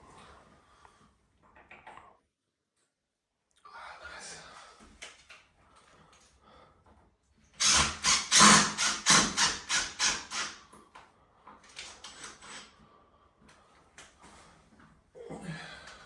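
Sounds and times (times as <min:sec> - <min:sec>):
power tool rapid strokes: 0:07.6 - 0:10.6.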